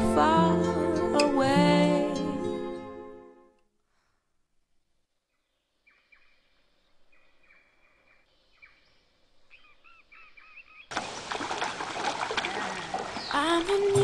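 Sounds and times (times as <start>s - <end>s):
birdsong whistles and chirps: 7.1s - 10.9s.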